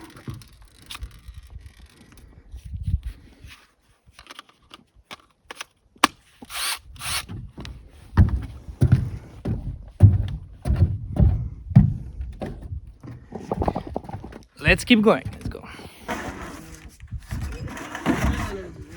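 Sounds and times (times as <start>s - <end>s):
heavy thuds: 7.4s - 18.9s.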